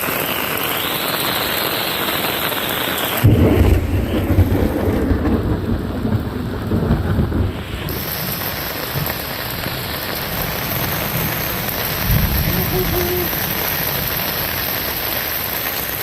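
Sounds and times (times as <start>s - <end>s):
heavy rain hissing: 0.0s - 16.0s
thunder rumbling: 3.2s - 16.0s.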